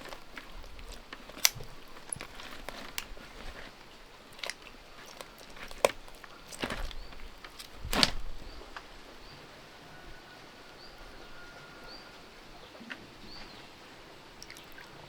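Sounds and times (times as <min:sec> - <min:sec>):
loud rustle: 0:00.0 - 0:08.9
steady background noise: 0:00.0 - 0:15.0
faint high bird chirps: 0:08.4 - 0:13.7.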